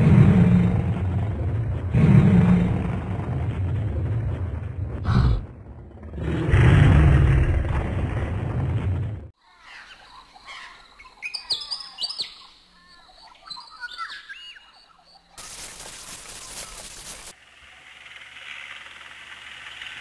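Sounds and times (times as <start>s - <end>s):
loud rumbling: 0.0s - 9.3s
birds chirping: 9.4s - 17.3s
steady hiss: 15.4s - 17.4s.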